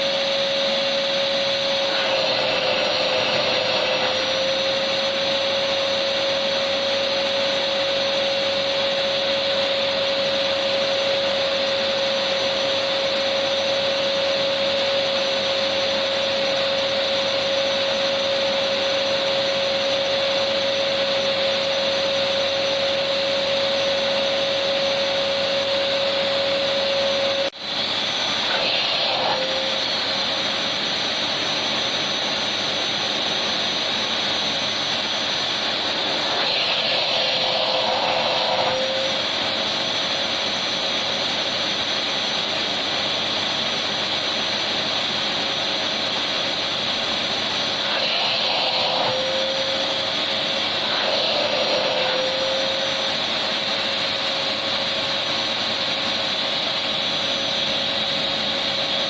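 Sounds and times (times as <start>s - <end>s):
vacuum cleaner motor running: 0.0s - 59.0s.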